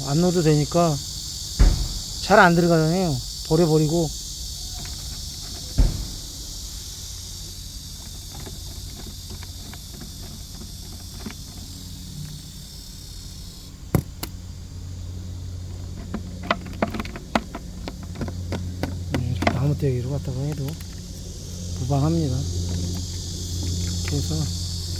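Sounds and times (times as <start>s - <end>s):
insects chirring: 0.0s - 24.9s
low hum: 1.0s - 24.9s
sharp clicks and knocks: 1.4s - 3.6s, 4.7s - 6.8s, 13.9s - 14.4s, 15.9s - 21.9s.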